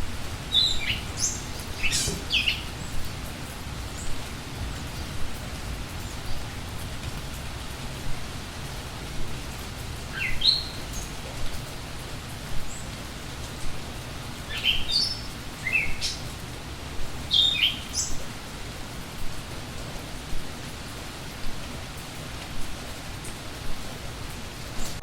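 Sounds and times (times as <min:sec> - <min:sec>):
steady rain falling: 0:00.0 - 0:25.0
songbird chirping: 0:00.4 - 0:06.5, 0:10.0 - 0:11.5, 0:14.5 - 0:16.4, 0:17.3 - 0:18.2.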